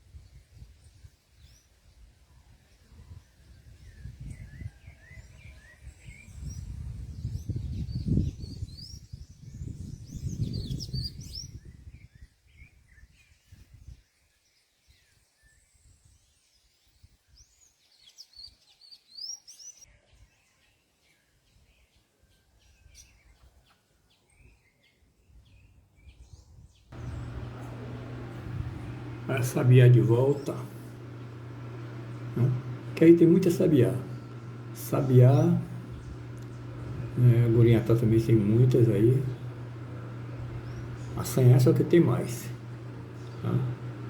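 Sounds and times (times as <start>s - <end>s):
loud uneven low rumble: 27.0s - 44.0s
small birds chirping: 27.0s - 44.0s.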